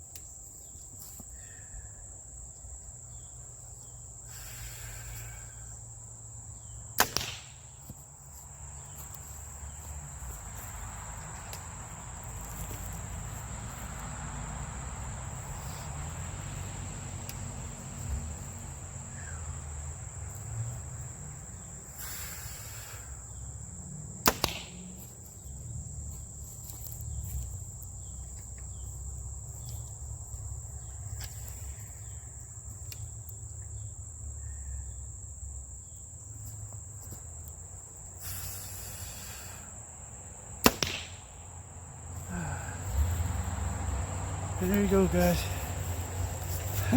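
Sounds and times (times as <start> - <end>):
insects droning: 0.0 - 46.9
arrow striking target: 7.0 - 7.7, 24.2 - 24.9, 40.6 - 41.3
bow string snap: 7.0 - 7.7, 24.2 - 24.8, 40.6 - 41.3.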